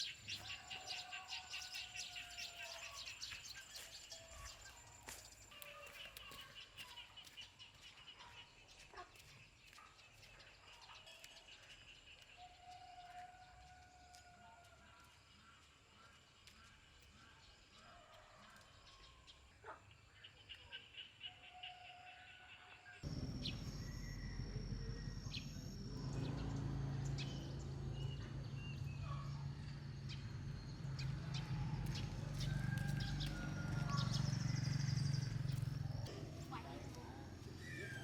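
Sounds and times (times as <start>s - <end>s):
steady low hum: 23.0s - 37.6s.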